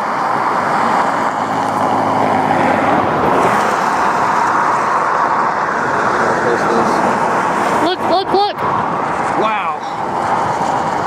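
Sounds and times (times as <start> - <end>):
road and wind noise inside car: 0.0 - 11.0.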